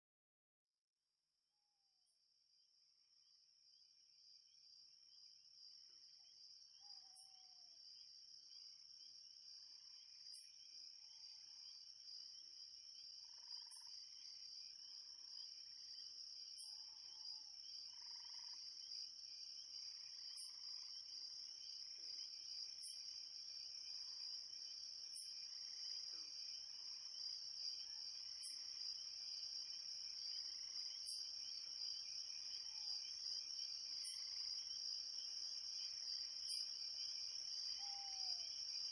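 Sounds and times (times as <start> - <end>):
faint lower insect calls: 2.0 - 38.9
crickets trilling: 10.0 - 38.9.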